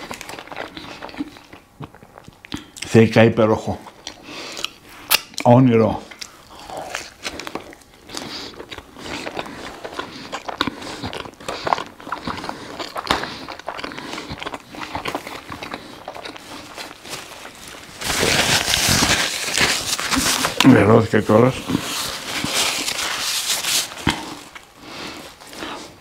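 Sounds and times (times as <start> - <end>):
chewing with mouth clicks: 0.0 - 2.9, 3.8 - 17.8
plastic wrapper tearing: 16.2 - 24.6.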